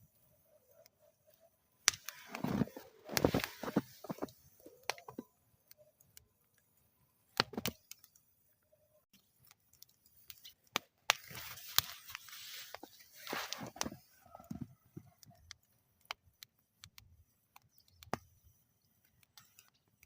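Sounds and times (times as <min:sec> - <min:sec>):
wood fire crackling and popping: 0:01.8 - 0:06.7, 0:07.3 - 0:08.2, 0:09.2 - 0:20.0
flames hissing: 0:01.9 - 0:04.9.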